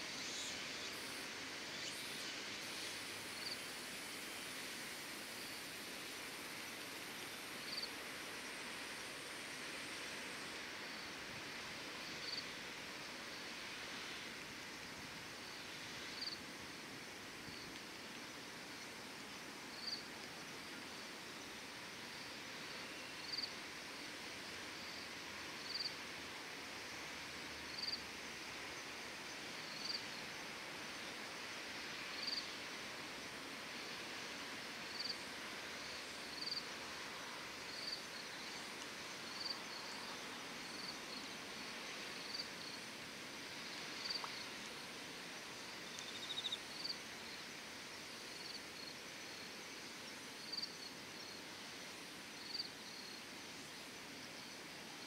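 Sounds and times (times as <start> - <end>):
insect chirping: 0.0 - 11.2, 12.0 - 12.5, 14.8 - 16.4, 17.4 - 23.6, 24.8 - 26.0, 27.6 - 28.0, 28.8 - 30.4, 32.0 - 32.6, 34.9 - 55.0
steady hiss: 0.0 - 55.0.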